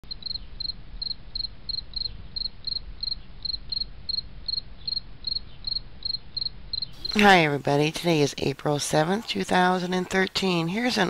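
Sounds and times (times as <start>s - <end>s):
insect chirping: 0.0s - 7.3s.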